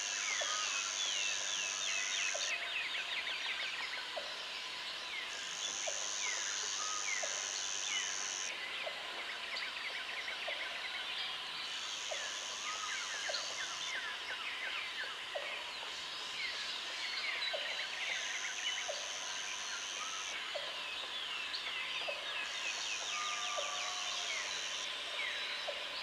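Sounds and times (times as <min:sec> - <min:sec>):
high steady insect buzz: 0:00.0 - 0:02.6, 0:03.4 - 0:08.6, 0:11.6 - 0:15.2, 0:15.9 - 0:20.7, 0:22.3 - 0:26.0.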